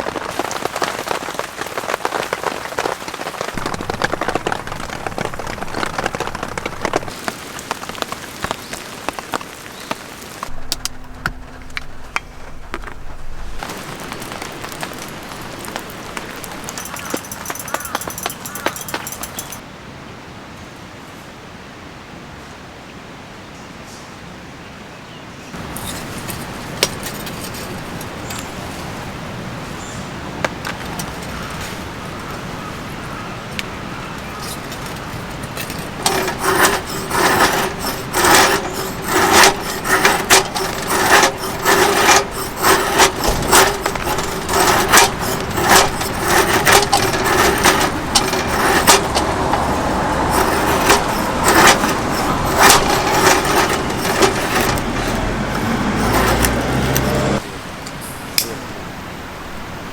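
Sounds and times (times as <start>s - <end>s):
knocks and clinks: 16.2s - 19.6s, 34.0s - 57.4s.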